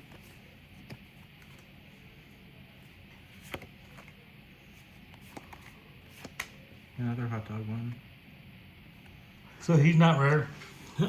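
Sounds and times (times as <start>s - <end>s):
trading cards clicking: 5.1s - 6.7s.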